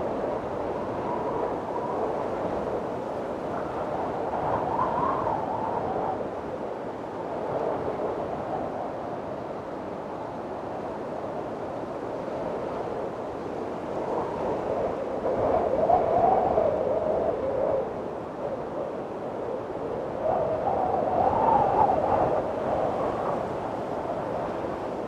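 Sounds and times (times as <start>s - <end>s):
strong wind gusting: 13.5s - 25.0s.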